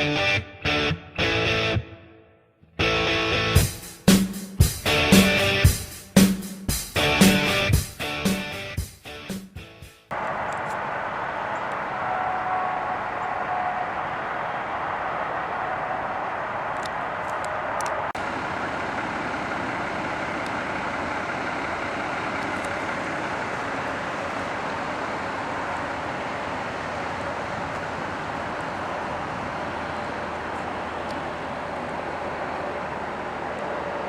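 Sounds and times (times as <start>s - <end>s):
vehicle hiss and rumble: 10.1s - 34.0s.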